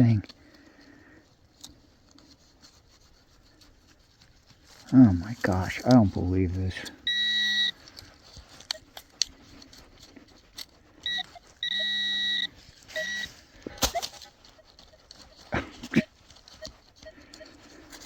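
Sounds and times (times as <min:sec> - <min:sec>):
digging clicks and scrapes: 0:00.0 - 0:18.0
metal detector beeping: 0:06.8 - 0:08.0, 0:11.0 - 0:18.0.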